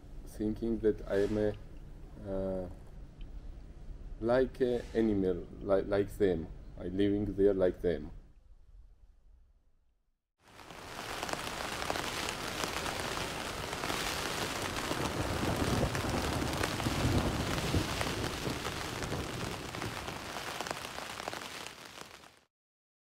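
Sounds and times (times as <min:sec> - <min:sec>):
rain patter: 0:10.4 - 0:22.5.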